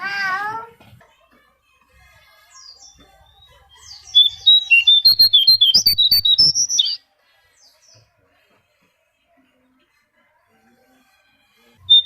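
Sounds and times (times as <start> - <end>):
songbird chirping: 2.3 - 7.0.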